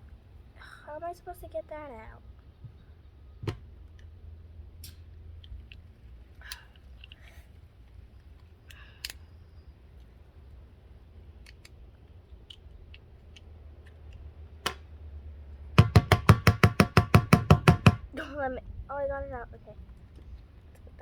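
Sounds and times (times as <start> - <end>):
rapid ringing knocks: 15.8 - 18.1.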